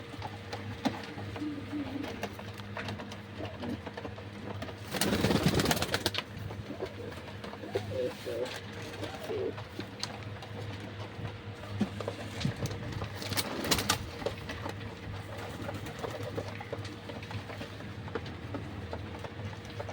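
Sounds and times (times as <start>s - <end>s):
steady low hum: 0.0s - 19.9s
pigeons cooing: 0.1s - 10.0s.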